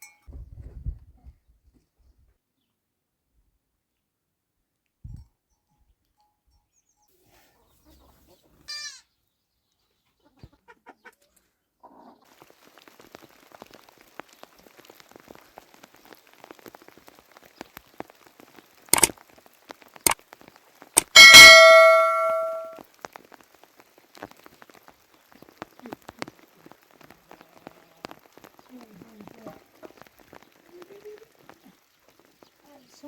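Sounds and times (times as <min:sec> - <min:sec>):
rain pattering: 0:12.3 - 0:33.0.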